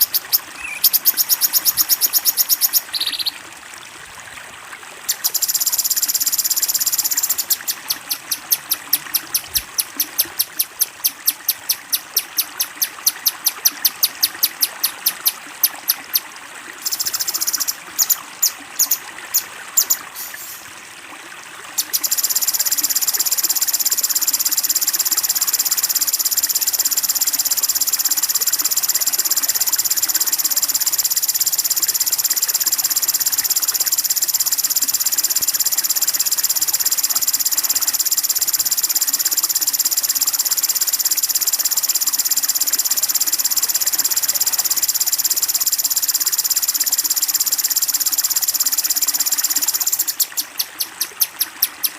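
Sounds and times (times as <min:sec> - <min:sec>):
songbird shrill buzzing trill: 0:00.0 - 0:03.4
flowing water hiss: 0:00.0 - 0:51.9.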